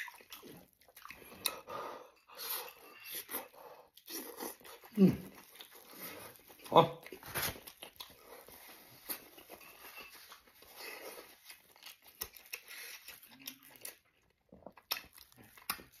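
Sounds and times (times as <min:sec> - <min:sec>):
person chewing with wet mouth clicks: 0:11.3 - 0:16.0.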